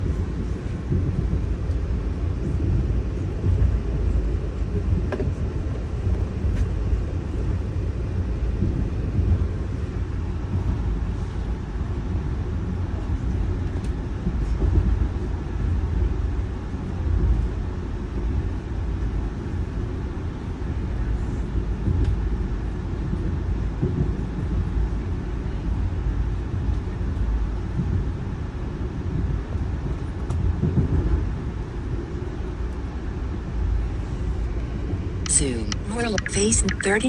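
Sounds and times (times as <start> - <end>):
train rumbling: 0.0 - 37.0.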